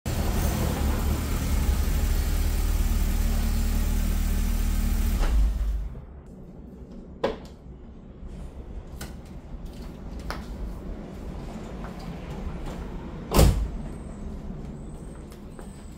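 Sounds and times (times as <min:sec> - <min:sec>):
car engine idling: 0:00.1 - 0:05.9.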